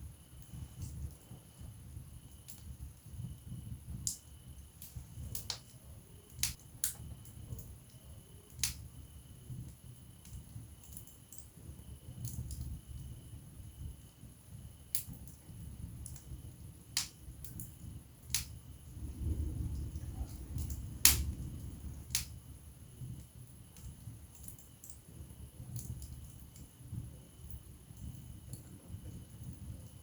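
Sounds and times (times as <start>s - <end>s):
fire crackling and popping: 0.0s - 30.0s.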